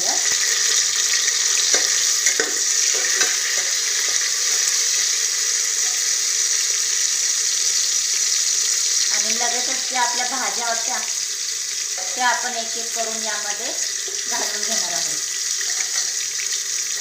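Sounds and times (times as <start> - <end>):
food sizzling in hot oil: 0.0 - 17.0
metal spatula scraping a pan: 0.4 - 4.7.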